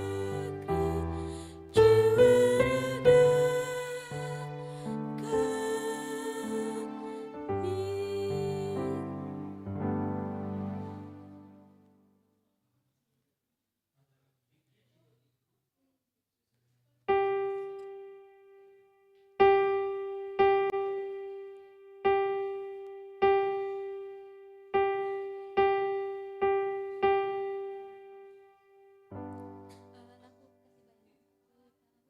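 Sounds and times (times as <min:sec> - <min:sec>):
piano single note: 0:00.0 - 0:11.8
piano chord: 0:00.0 - 0:12.0, 0:17.1 - 0:30.2.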